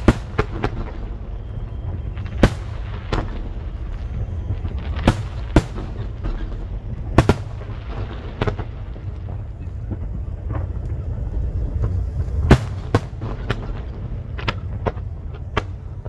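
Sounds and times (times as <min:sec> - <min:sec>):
fireworks bangs: 0:00.0 - 0:16.0
low rumble: 0:00.0 - 0:16.0.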